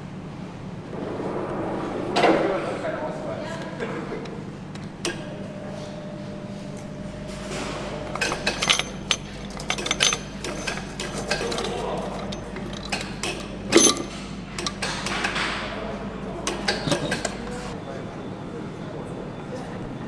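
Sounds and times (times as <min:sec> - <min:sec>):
steady machine hum: 0:00.0 - 0:14.6
metal parts and tools clinking: 0:08.1 - 0:13.1, 0:13.7 - 0:14.8.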